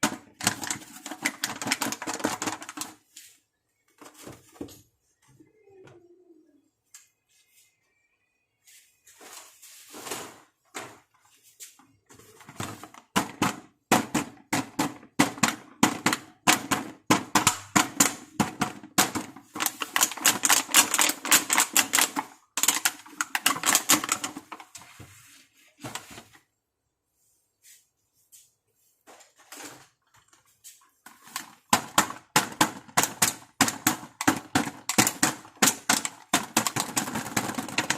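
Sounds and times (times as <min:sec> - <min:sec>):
toy pieces clicking and tapping: 0:14.8 - 0:24.5, 0:31.7 - 0:37.9.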